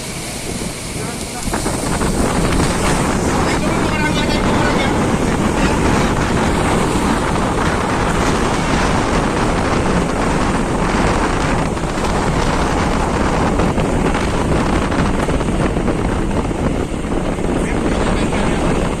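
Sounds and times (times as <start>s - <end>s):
boat engine running: 0.0s - 19.0s
waves washing: 0.0s - 19.0s
wind buffeting microphone: 0.0s - 19.0s.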